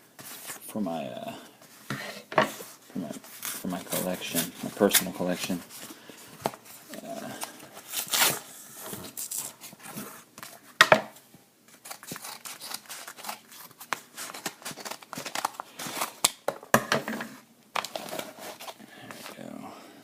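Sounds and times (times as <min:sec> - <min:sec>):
paper ripping: 0:07.8 - 0:08.4, 0:11.7 - 0:16.2
packaging crinkling: 0:11.7 - 0:16.4.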